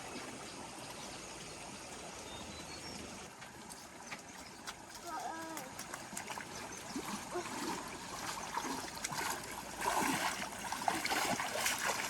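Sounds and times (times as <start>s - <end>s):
running water splashing: 3.0s - 12.0s.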